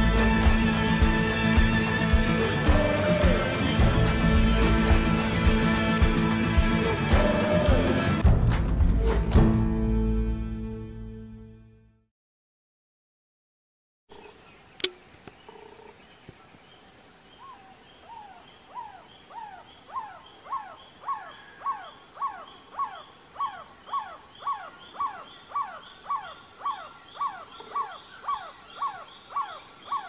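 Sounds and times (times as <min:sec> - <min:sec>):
sharp click: 0:14.8 - 0:15.0.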